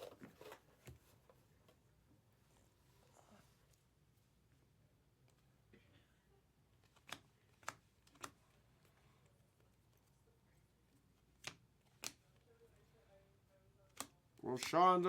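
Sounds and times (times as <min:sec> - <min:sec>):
trading cards clicking: 0:06.8 - 0:08.4, 0:11.3 - 0:12.4, 0:13.9 - 0:15.0.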